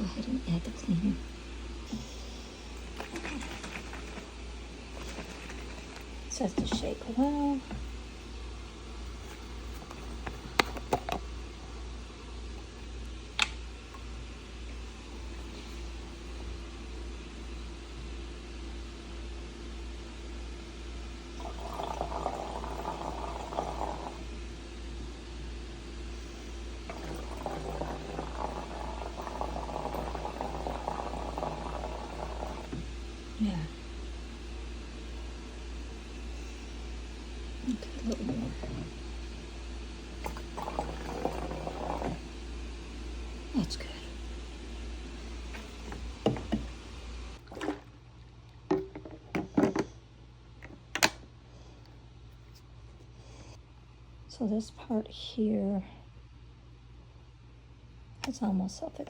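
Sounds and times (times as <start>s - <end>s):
water filling a tank: 2.8s - 11.2s, 21.3s - 25.3s, 26.4s - 33.2s, 38.0s - 42.5s, 45.2s - 48.0s
water sloshing in plastic tank: 47.4s - 48.0s.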